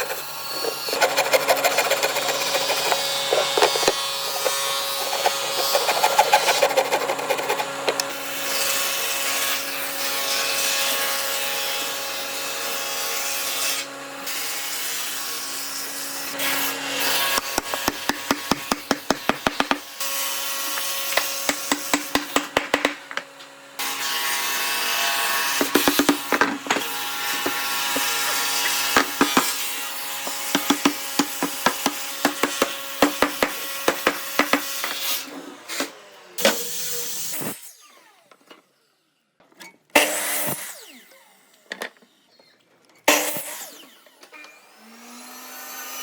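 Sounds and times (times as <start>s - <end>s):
wood rubbing and rasping: 0.0s - 8.2s, 24.4s - 35.1s.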